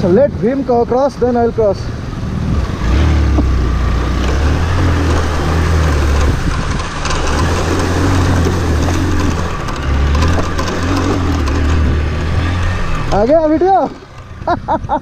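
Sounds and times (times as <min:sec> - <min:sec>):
motorcycle engine running: 0:02.3 - 0:15.0.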